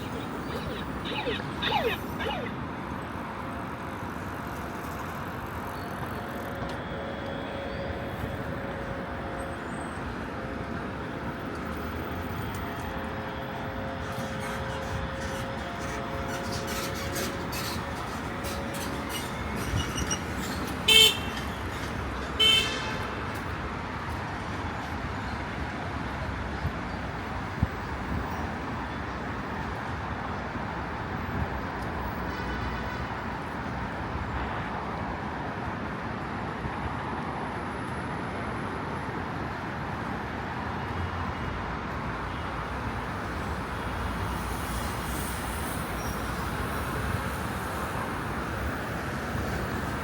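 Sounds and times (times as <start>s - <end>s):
quick falling chirps: 0.0s - 2.5s
street traffic: 0.0s - 50.0s.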